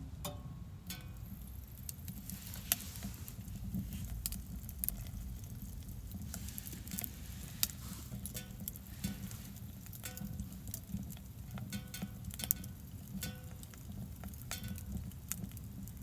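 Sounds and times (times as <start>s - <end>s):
light ticks and taps: 0.2s - 16.0s
wind rumble on microphone: 1.2s - 11.8s.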